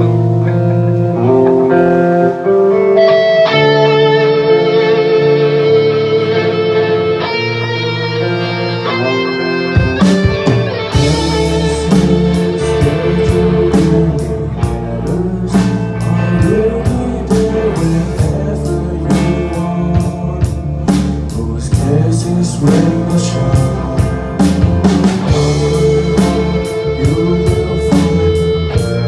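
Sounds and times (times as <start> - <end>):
live rock band: 0.0 - 29.0.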